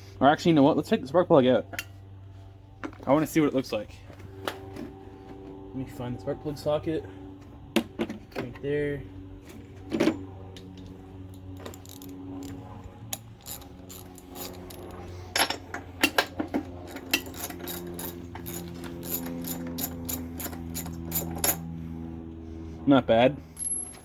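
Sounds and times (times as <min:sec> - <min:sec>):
steady low hum: 0:00.0 - 0:24.0
socket ratchet clicking: 0:11.6 - 0:14.9.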